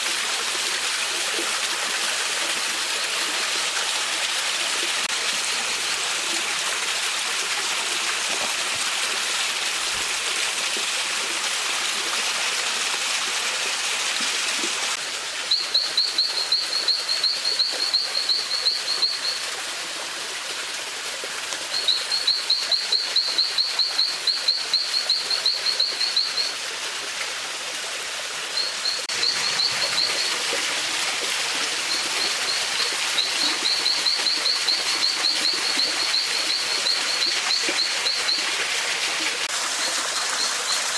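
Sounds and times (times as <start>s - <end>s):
mountain stream running: 0.0s - 40.9s
bird chirping rapidly: 28.6s - 30.4s, 31.8s - 38.5s.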